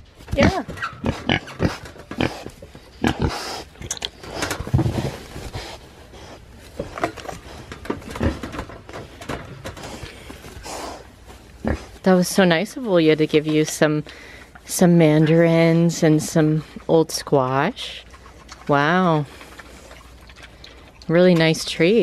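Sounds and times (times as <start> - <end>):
pigs crunching and chewing: 0.0 - 22.0
pig grunting: 0.4 - 3.7.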